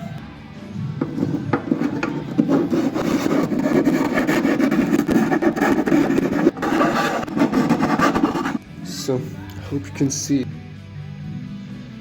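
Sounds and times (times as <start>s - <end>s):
hand file rasping on wood: 1.0s - 8.6s.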